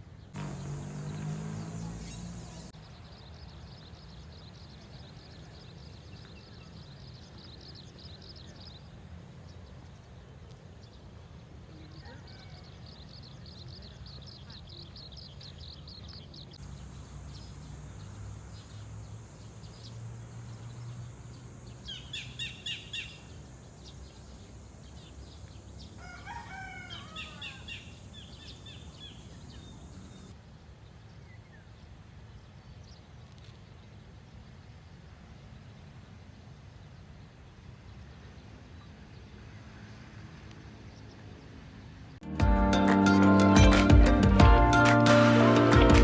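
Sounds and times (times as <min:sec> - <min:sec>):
birdsong: 0:00.0 - 0:42.2
rooster crowing: 0:12.0 - 0:12.9, 0:26.0 - 0:27.8
loud repeated bird chirps: 0:21.8 - 0:23.3.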